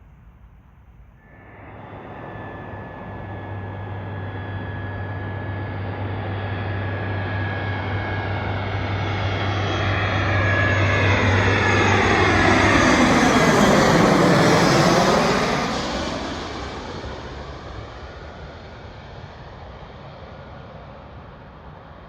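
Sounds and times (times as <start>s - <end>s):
jet airliner engines: 0.0s - 22.0s
jet passing sweep: 1.2s - 16.9s.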